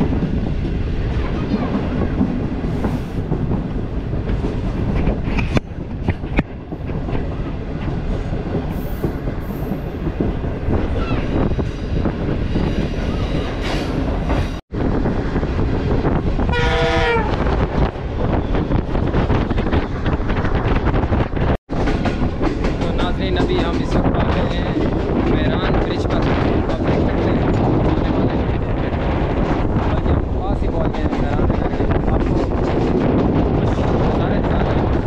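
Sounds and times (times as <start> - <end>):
rushing air: 0.0 - 23.4
train wheels rumbling on rails: 0.0 - 35.0.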